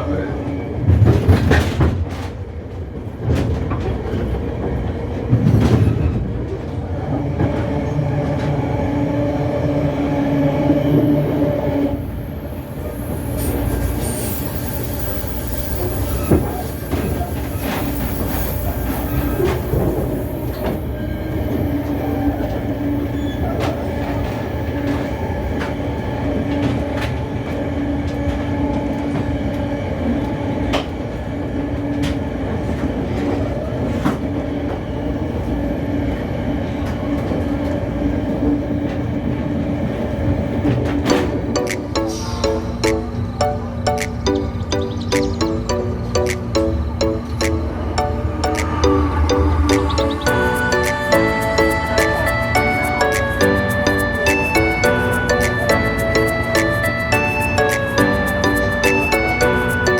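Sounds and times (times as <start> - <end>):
train rumble and hum: 0.0 - 59.9
high wheel squeal: 10.5 - 24.4.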